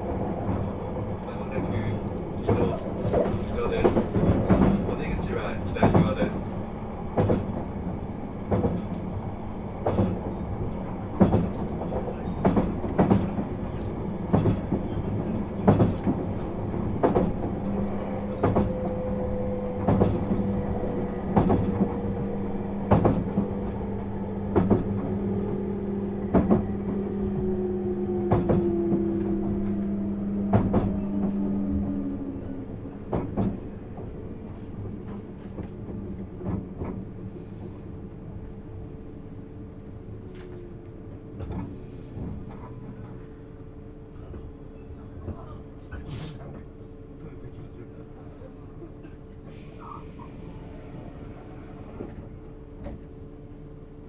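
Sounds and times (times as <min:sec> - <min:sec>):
steady train hum: 0:00.0 - 0:54.0
train wheels clacking over rail joints: 0:01.4 - 0:09.1, 0:09.8 - 0:27.6.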